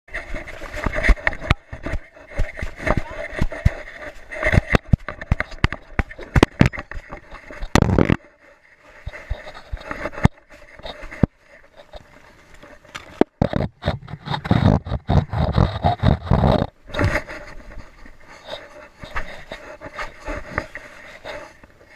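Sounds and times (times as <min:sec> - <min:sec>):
camera mount knocking and scraping: 0:04.5 - 0:08.2, 0:12.9 - 0:17.2.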